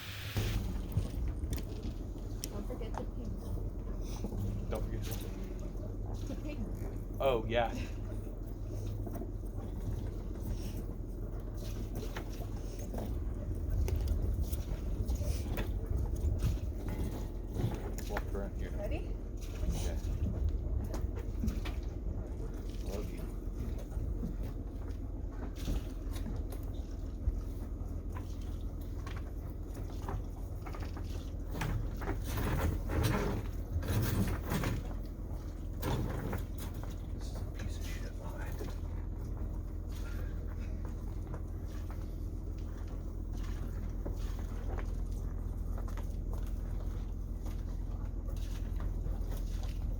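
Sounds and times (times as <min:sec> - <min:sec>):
boat engine idling: 0:00.0 - 0:49.9
steady low rumble: 0:00.0 - 0:49.9
dock lines and deck gear handled: 0:19.4 - 0:37.9.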